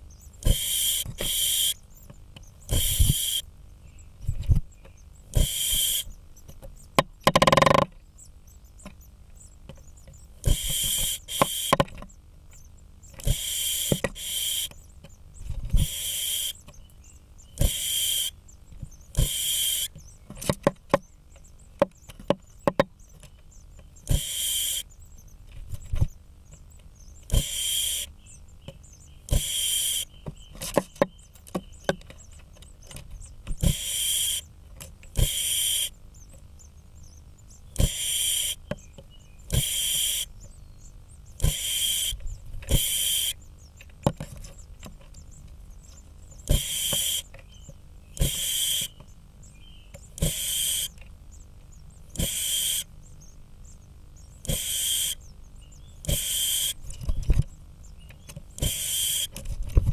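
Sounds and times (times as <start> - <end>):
short hissing bursts: 0.4 - 1.8, 2.7 - 3.4, 5.3 - 6.1, 10.4 - 11.7, 13.2 - 14.8, 15.8 - 16.6, 17.6 - 18.3, 19.1 - 19.9, 24.1 - 24.8, 27.3 - 28.1, 29.3 - 30.1, 33.6 - 34.4, 35.2 - 36.0, 48.2 - 48.9, 50.2 - 50.9, 52.2 - 52.9, 54.5 - 55.2, 56.1 - 56.8, 58.6 - 59.3
woodpecker knocking on wood: 6.5 - 8.0, 21.8 - 23.4.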